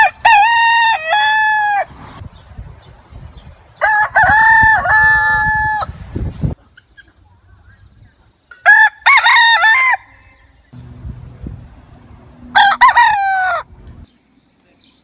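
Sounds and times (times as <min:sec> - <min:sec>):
rooster crowing: 0:00.0 - 0:01.9, 0:03.8 - 0:06.0, 0:08.6 - 0:10.4, 0:12.4 - 0:13.8
steady high hiss: 0:02.2 - 0:08.6.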